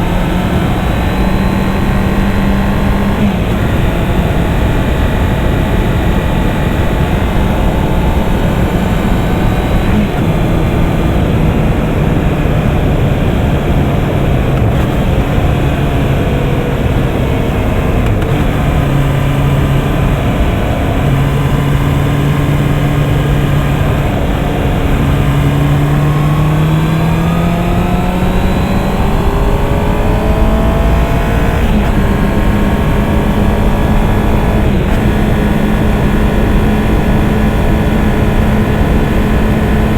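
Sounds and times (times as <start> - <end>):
motorcycle engine accelerating: 0.0 - 39.9
wind noise: 0.0 - 39.9.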